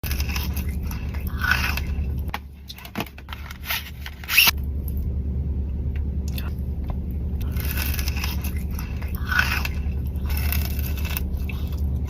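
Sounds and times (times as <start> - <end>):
packaging crinkling and scraping: 0.0 - 4.6, 7.4 - 12.0
low steady hum: 0.0 - 12.0.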